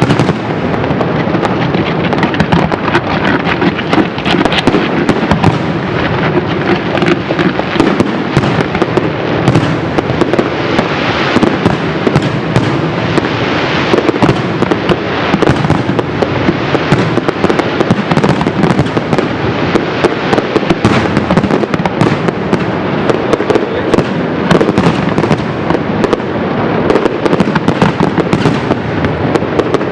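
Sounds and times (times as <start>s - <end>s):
fireworks bursts and crackling: 0.0s - 29.9s
sharp firework bangs: 0.0s - 29.9s.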